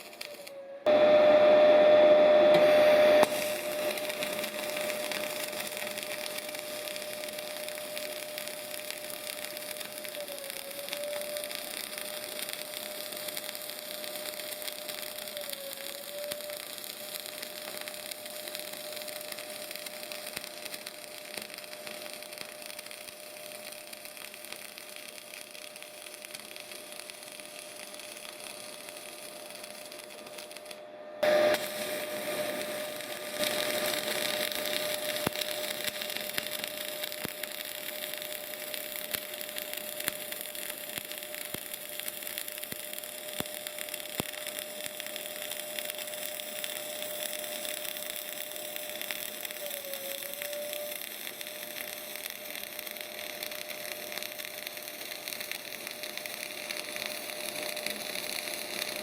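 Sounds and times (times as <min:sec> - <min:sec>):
welding arc crackling: 0:00.0 - 0:59.0
spatter pops: 0:02.5 - 0:59.0.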